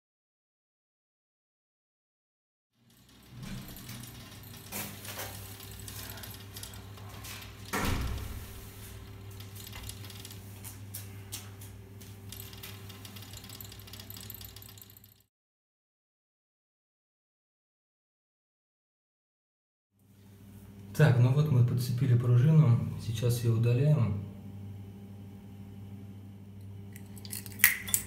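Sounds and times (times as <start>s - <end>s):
circulation pump humming: 2.8s - 15.2s, 20.1s - 28.0s.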